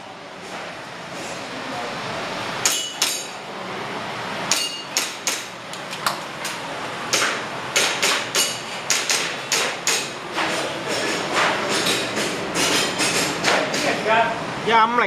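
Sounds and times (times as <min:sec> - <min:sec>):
metallic ring: 0:04.5 - 0:05.0.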